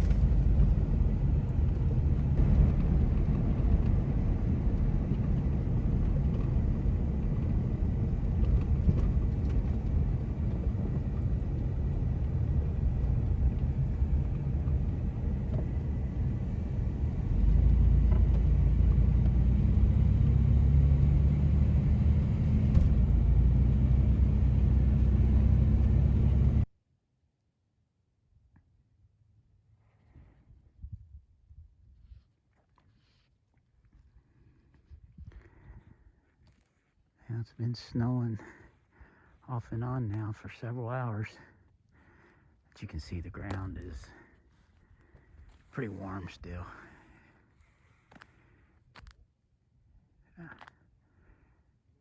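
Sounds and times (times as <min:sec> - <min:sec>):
vehicle road and engine rumble: 0:00.0 - 0:26.7, 0:42.8 - 0:48.4.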